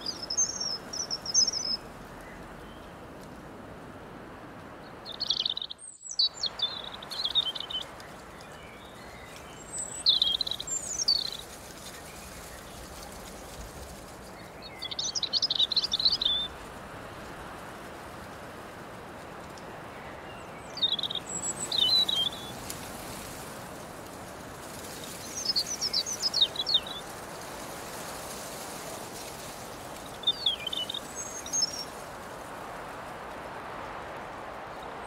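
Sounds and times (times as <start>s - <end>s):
songbird chirping: 0.0s - 3.4s, 4.8s - 17.7s, 19.5s - 35.0s
breeze through grass and leaves: 0.0s - 35.0s.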